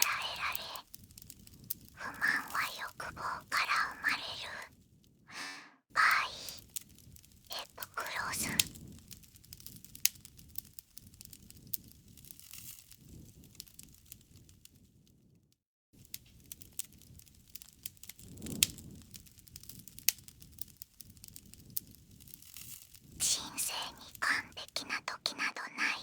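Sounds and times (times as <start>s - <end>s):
campfire crackling: 0.0s - 15.1s, 16.0s - 26.0s.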